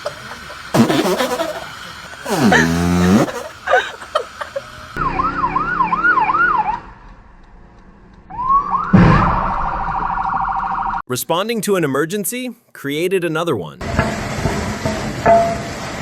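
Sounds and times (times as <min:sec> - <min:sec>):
emergency vehicle siren wailing: 0:05.0 - 0:07.1, 0:08.3 - 0:11.0
loud thud: 0:09.0 - 0:09.6.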